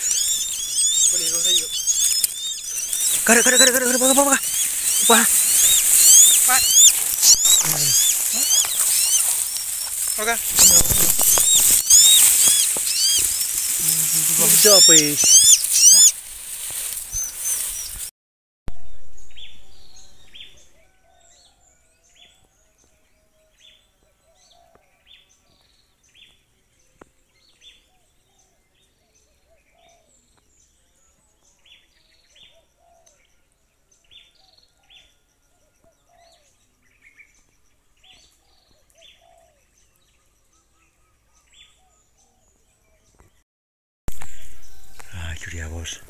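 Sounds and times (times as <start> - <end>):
high downward-sliding bird chirps: 0.0 - 16.2, 17.0 - 18.1, 18.8 - 20.9.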